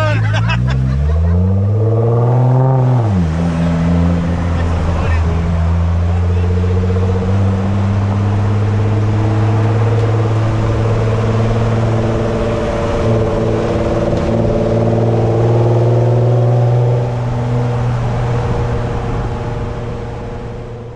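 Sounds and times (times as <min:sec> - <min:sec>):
car engine running: 0:00.0 - 0:20.9.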